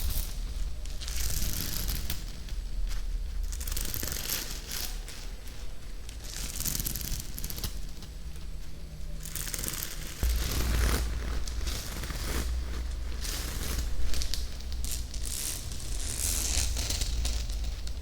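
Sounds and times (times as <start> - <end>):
crackly crinkling noise: 0.0 - 18.0
low rumble: 10.2 - 18.0.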